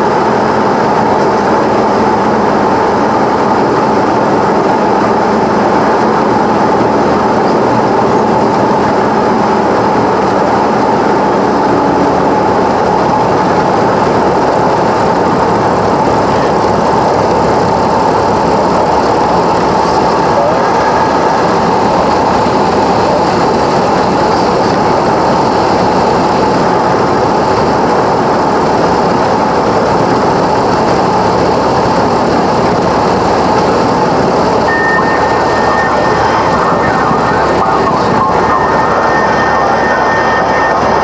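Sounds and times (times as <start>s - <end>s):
airplane cabin engine noise: 0.0s - 41.0s
thin high tone: 34.6s - 41.0s.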